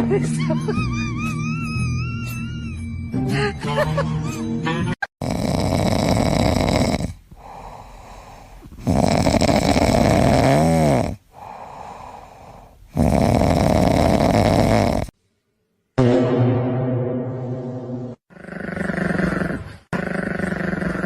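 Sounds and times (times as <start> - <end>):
pet snoring loudly: 5.2 - 15.2, 18.3 - 21.0
quiet breaths: 7.1 - 10.0, 11.0 - 13.4.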